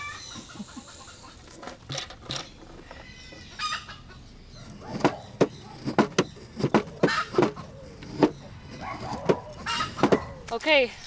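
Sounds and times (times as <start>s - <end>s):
chickens clucking: 0.0s - 10.5s
sharp knocks: 4.7s - 10.5s.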